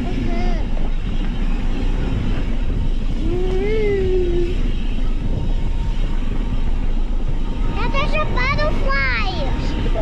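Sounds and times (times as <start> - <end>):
child's wordless voice: 7.8 - 10.0.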